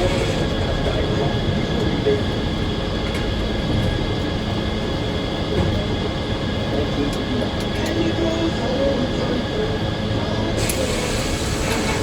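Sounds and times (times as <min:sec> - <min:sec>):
sawmill mechanical drone: 0:00.0 - 0:12.0.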